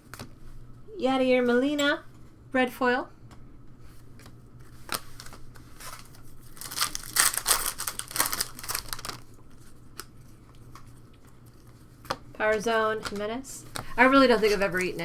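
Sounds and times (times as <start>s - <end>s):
cards clicking and rustling: 4.2s - 12.2s, 13.0s - 15.0s
foil wrapper crinkling and tearing: 4.7s - 11.8s.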